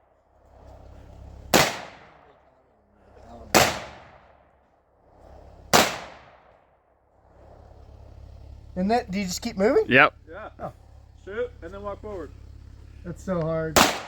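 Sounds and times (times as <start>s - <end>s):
pistol shots: 1.5s - 2.4s, 3.5s - 4.5s, 5.7s - 6.6s, 13.8s - 14.0s.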